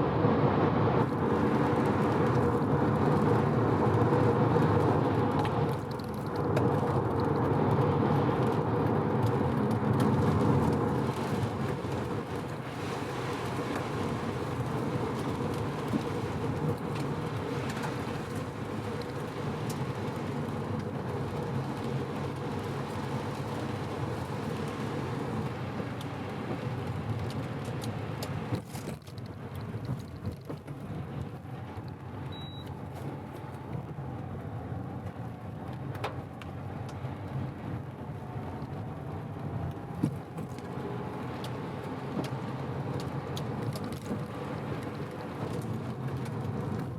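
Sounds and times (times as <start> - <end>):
short high beep: 32.3 - 32.7.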